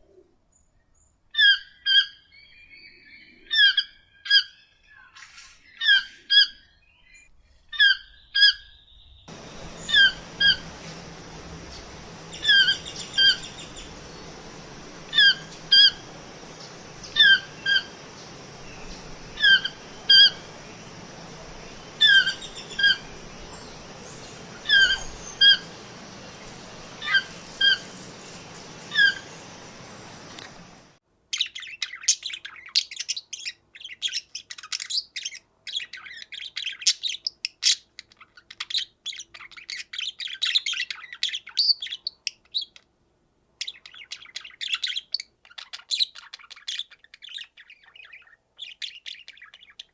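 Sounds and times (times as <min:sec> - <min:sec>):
rapid high chirps: 0:09.3 - 0:31.0
steady hiss: 0:09.3 - 0:31.0.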